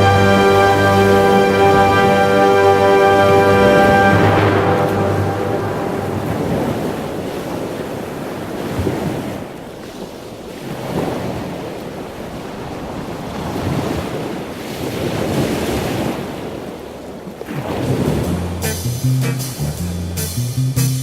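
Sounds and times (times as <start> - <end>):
waves rushing along hull: 0.0 - 19.6
wind buffeting microphone: 3.7 - 18.6.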